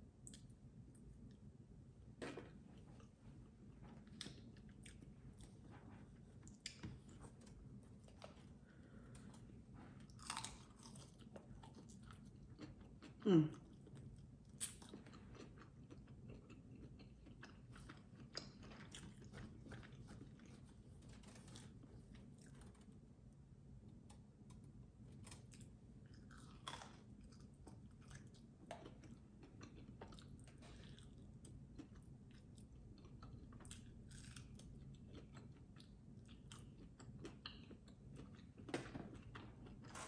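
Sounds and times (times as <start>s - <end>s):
chewing and biting chicken wings: 10.0s - 20.7s, 25.2s - 40.0s.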